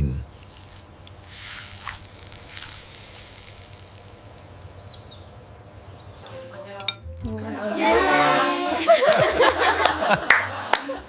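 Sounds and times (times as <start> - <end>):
food sizzling in hot oil: 0.3 - 6.1.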